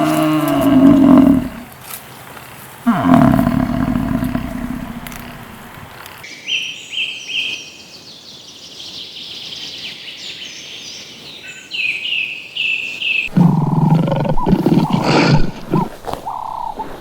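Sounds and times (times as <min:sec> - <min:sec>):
songbird piercing notes: 0:15.7 - 0:16.9.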